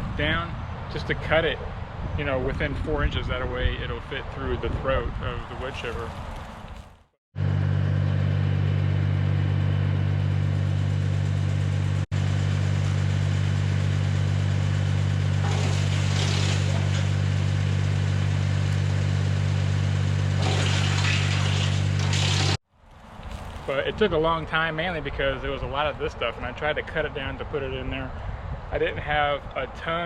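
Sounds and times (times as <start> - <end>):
tractor engine droning: 7.4 - 25.8
wood chipper hissing: 12.2 - 23.9.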